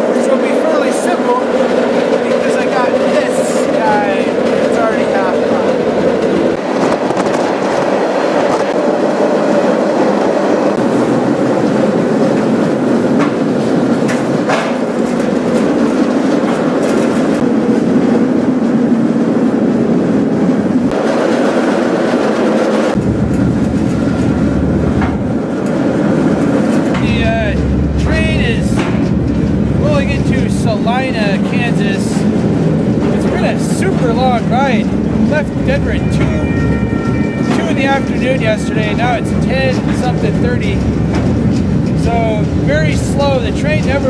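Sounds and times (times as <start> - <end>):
freight car rumbling and rattling: 0.0 - 44.0
deep low rumble: 22.9 - 44.0.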